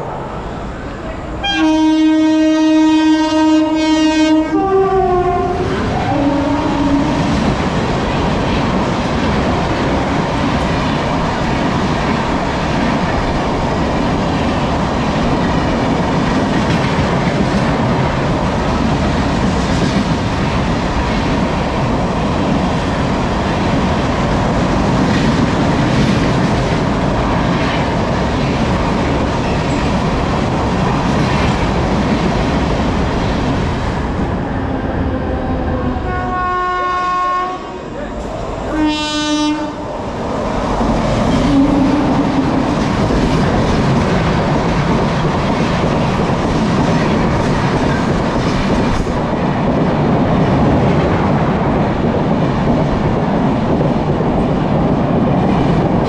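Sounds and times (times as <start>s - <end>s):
train horn blaring: 1.4s - 7.4s, 34.4s - 40.0s, 41.3s - 42.8s.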